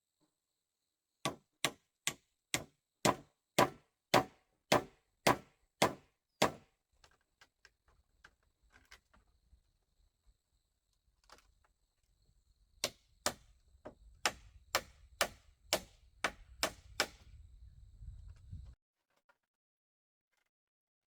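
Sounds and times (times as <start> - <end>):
tool striking bamboo: 1.3 - 6.7, 12.8 - 13.5, 14.2 - 17.2.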